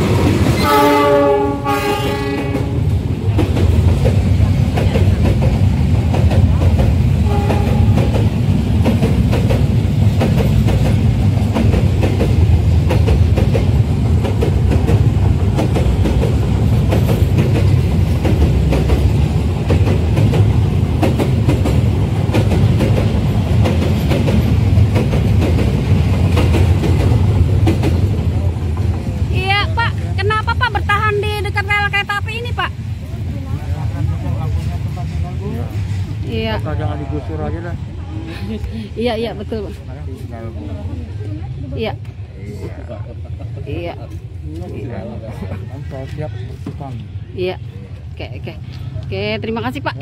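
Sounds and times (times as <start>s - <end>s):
train rumbling and clattering past: 0.0s - 50.0s
train horn: 0.6s - 3.0s, 7.2s - 8.2s.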